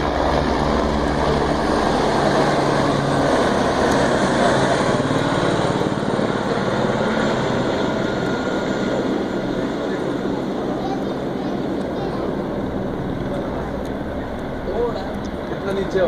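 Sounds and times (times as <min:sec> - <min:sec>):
helicopter turbine and rotor: 0:00.0 - 0:16.0.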